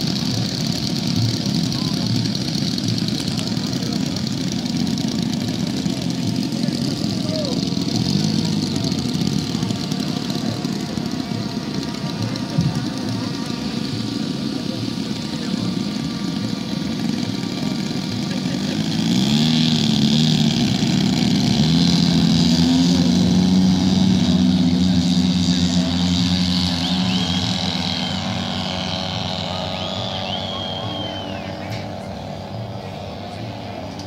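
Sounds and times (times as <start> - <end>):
model airplane engine: 0.0 - 34.0.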